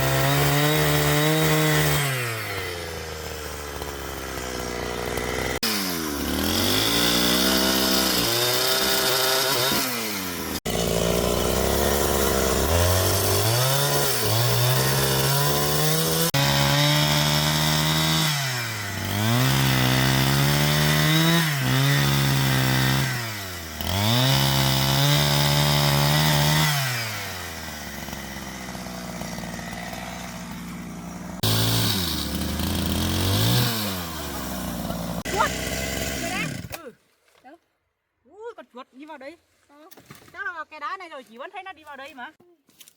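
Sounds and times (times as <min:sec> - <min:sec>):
chainsaw cutting wood: 0:00.0 - 0:37.0.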